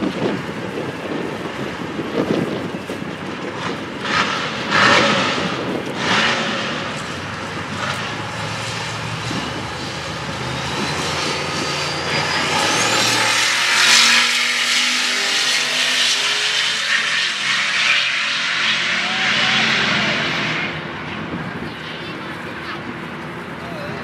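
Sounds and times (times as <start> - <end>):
race car engines at full throttle: 0.0 - 24.0
thin rising whine: 8.1 - 21.2.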